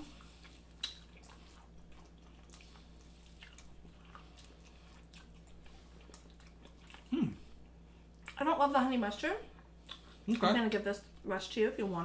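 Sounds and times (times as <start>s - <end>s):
wet chewing and smacking: 0.0s - 8.4s, 9.5s - 10.5s.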